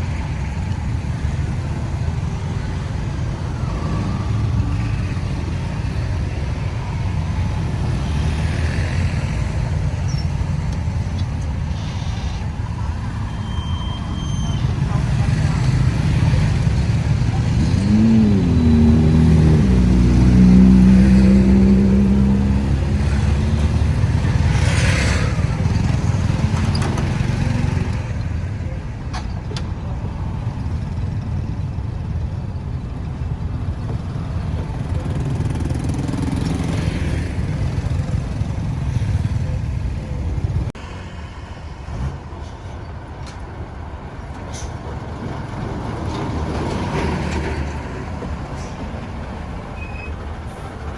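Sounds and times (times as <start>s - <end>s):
vehicle engines passing: 0.0s - 50.9s
engine revving up: 14.8s - 28.0s.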